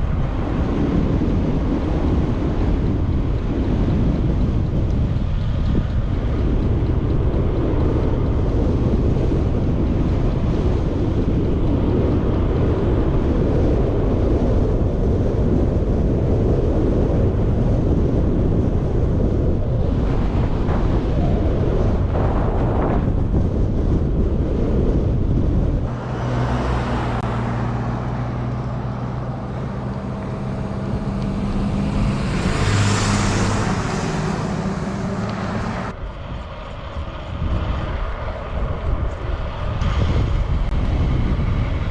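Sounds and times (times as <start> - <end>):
motor traffic hum: 0.0 - 41.9
wind buffeting microphone: 0.0 - 41.9
vehicle passing close: 25.9 - 36.0.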